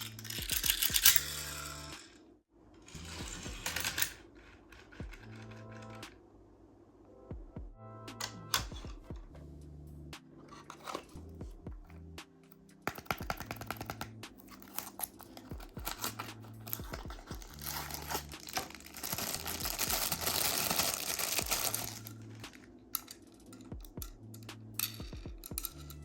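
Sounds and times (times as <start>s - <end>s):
background music with bass: 7.1s - 14.4s, 15.4s - 26.0s
packaging clicking and crinkling: 12.9s - 23.6s
packaging tearing: 14.6s - 22.6s.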